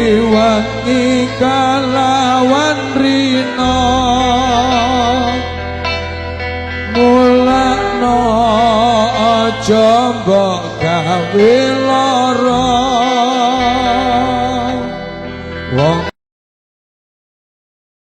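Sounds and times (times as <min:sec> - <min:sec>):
steady low backing: 0:00.0 - 0:16.1
devotional song with ornamented melody: 0:00.0 - 0:16.2.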